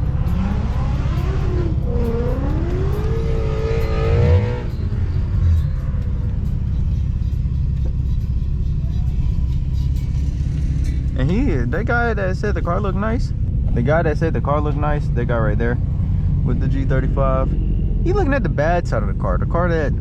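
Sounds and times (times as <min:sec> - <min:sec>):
car engine revving: 0:00.0 - 0:20.0
engine and road rumble: 0:00.0 - 0:20.0.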